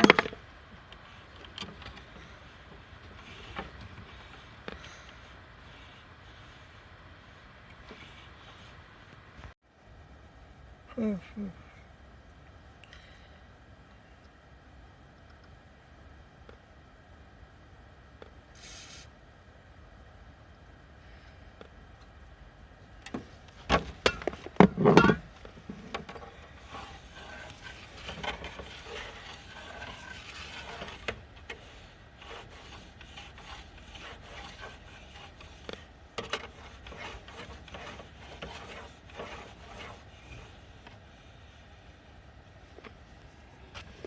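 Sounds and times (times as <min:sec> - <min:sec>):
parts scraping and rubbing: 0:00.0 - 0:09.6, 0:23.1 - 0:41.7.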